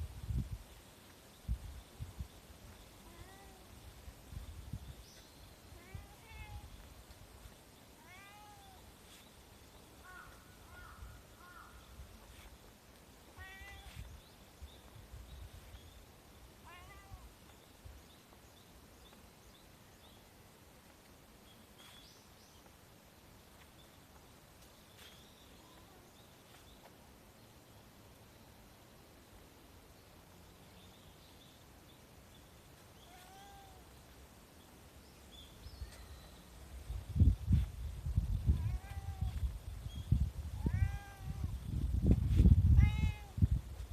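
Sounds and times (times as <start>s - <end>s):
cat meowing: 5.8s - 6.7s, 8.0s - 8.8s, 13.4s - 14.0s, 16.6s - 17.3s, 33.0s - 33.8s, 38.6s - 39.3s, 40.6s - 41.5s, 42.7s - 43.4s.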